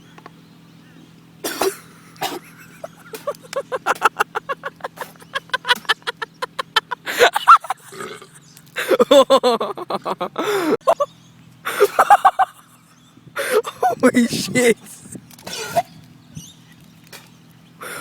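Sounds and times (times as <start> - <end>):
person gagging and retching: 7.8 - 8.4.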